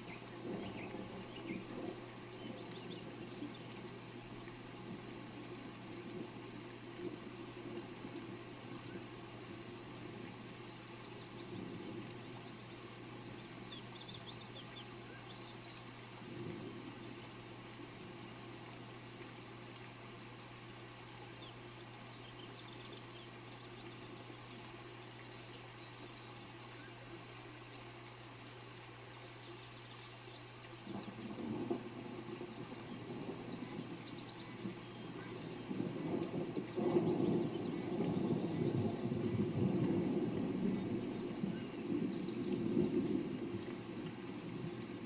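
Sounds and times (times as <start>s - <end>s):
rain falling: 0.0s - 45.0s.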